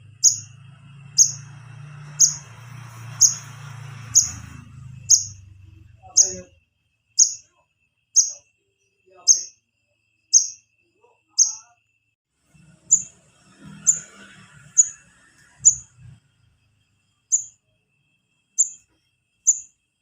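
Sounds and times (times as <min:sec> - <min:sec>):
young bird chirps: 0:00.2 - 0:00.5, 0:01.2 - 0:01.4, 0:02.2 - 0:02.5, 0:03.2 - 0:03.5, 0:04.1 - 0:04.5, 0:05.1 - 0:05.4, 0:06.1 - 0:06.5, 0:07.2 - 0:07.5, 0:08.2 - 0:08.4, 0:09.2 - 0:09.5, 0:10.3 - 0:10.6, 0:11.4 - 0:11.7, 0:12.9 - 0:13.1, 0:18.6 - 0:18.8, 0:19.5 - 0:19.7.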